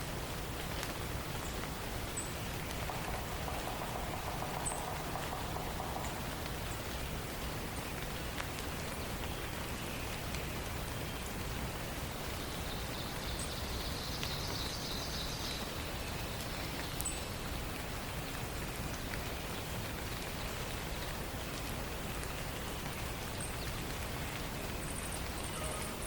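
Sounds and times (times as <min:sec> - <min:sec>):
steady forest hiss: 0:00.0 - 0:26.0
songbird trilling: 0:02.9 - 0:06.4.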